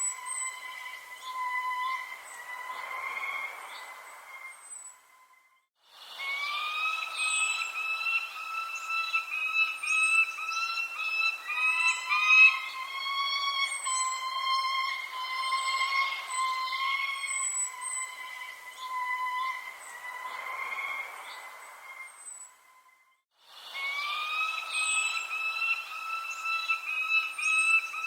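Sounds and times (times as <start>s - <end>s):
thin high bird chirps: 3.7s - 20.6s, 23.7s - 28.0s
birds calling: 6.1s - 22.5s, 23.6s - 28.0s.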